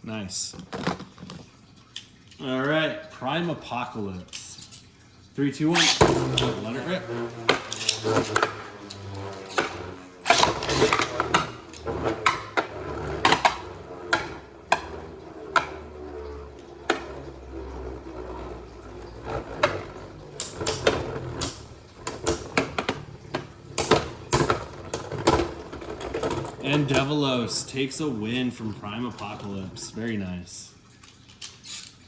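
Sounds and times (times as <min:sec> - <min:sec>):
spinning tops whirring: 0:05.4 - 0:30.6.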